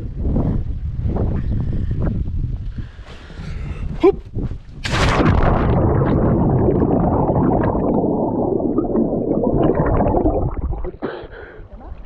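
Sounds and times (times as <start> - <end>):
muffled underwater churning and bubbling: 5.0 - 12.0.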